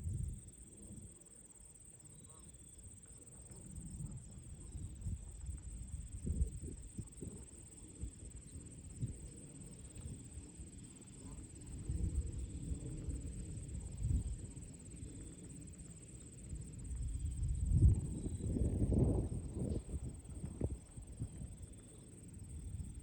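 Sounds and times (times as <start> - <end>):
gusty wind rumble: 0.0 - 0.5, 16.8 - 23.0
crickets trilling: 0.0 - 23.0.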